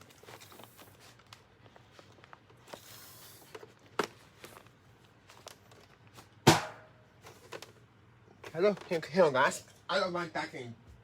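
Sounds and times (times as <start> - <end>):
sharp knock: 6.5 - 6.9.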